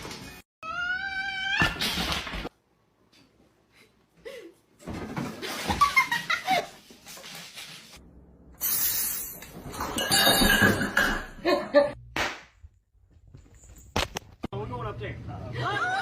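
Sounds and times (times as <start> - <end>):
people laughing: 15.5 - 16.0.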